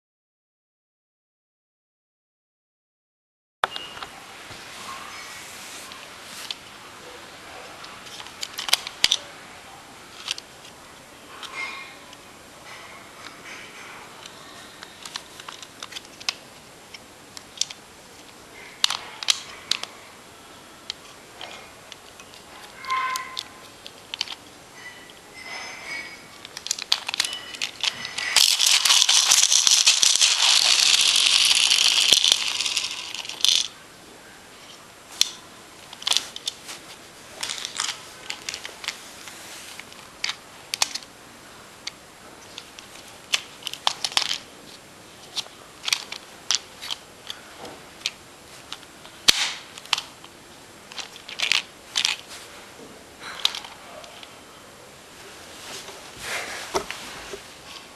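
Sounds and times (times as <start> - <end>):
plastic clicks and rattles: 26.4 - 33.7
spinning top launcher whirr: 28.4 - 33.6.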